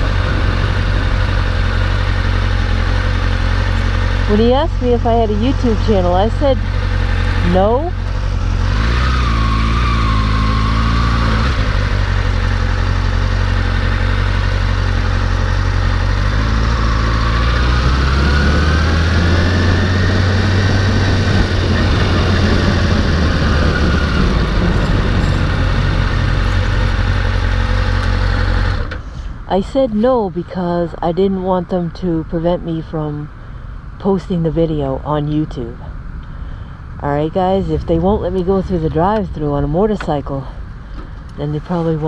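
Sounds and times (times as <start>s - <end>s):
motorcycle engine running: 0.0s - 29.2s.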